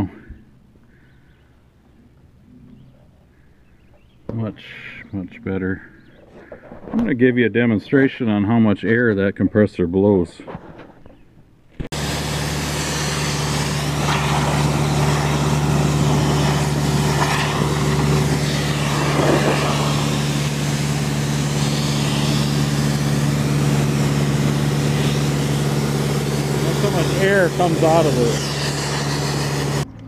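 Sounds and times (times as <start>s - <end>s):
compressed air jet: 11.9s - 29.8s
air compressor running: 11.9s - 29.9s.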